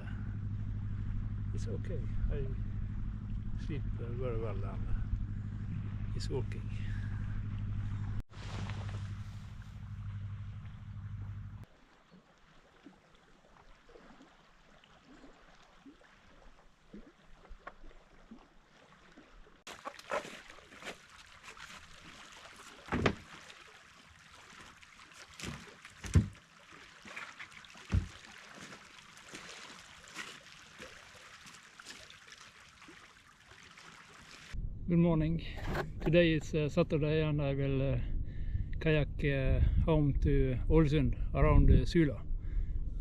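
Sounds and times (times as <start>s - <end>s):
water splashing and trickling: 8.3s - 34.6s
sharp splashes or knocks: 19.7s - 34.6s.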